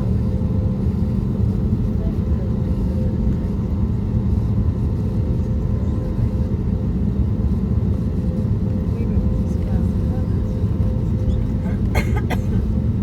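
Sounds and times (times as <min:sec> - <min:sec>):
jet engine and airflow rumble: 0:00.0 - 0:13.0.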